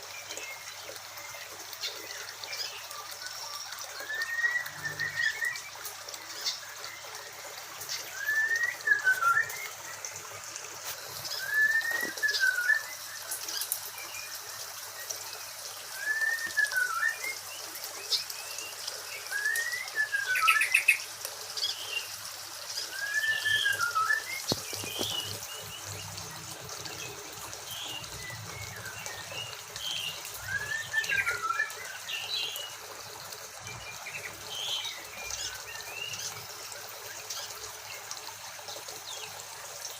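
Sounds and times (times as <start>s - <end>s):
birds chirping: 1.4s - 38.1s
bird whistling: 4.0s - 5.6s, 8.1s - 9.8s, 11.3s - 13.0s, 16.0s - 17.4s, 19.3s - 21.0s, 22.9s - 25.4s, 30.4s - 32.0s.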